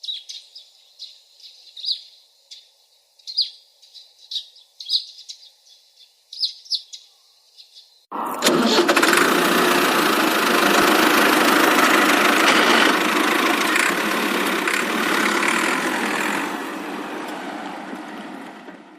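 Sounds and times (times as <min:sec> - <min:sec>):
tractor engine running: 0:08.1 - 0:18.9.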